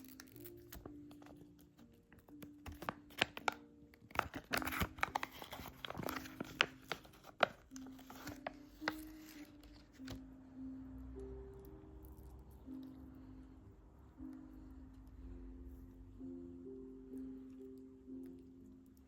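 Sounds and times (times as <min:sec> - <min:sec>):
packaging crinkling and rustling: 0:00.0 - 0:10.2
quiet background music: 0:00.0 - 0:19.0.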